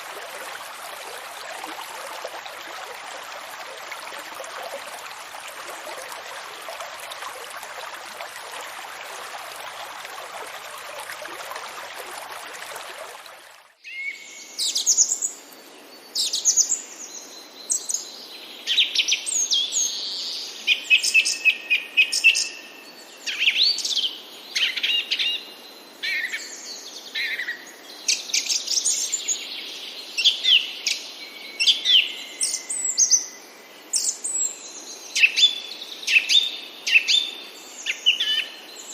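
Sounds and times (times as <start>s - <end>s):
running water: 0.0s - 13.8s
songbirds chirping: 0.0s - 38.9s.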